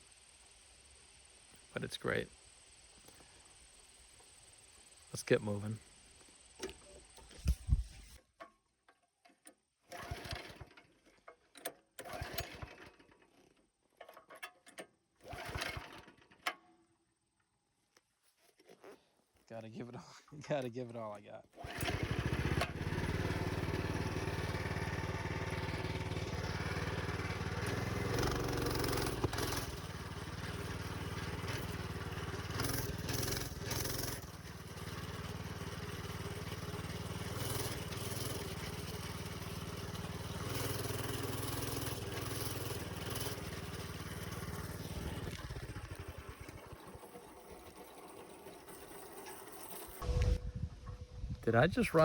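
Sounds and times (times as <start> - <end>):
minibike engine revving: 9.9 - 10.8, 12.0 - 13.0, 15.2 - 16.3, 21.6 - 50.4.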